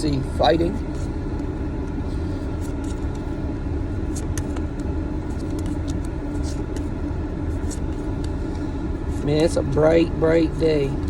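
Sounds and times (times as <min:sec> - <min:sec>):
cards clicking: 0:05.4 - 0:06.9.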